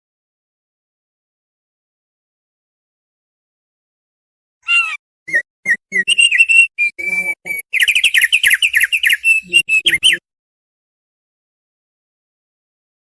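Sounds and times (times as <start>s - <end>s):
bird singing chattering phrase: 4.7s - 10.2s.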